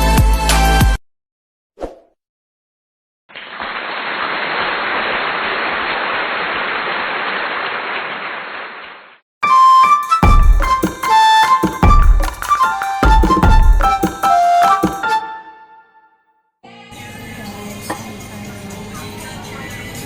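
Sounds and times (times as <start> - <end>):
electronic background music: 9.4 - 15.9.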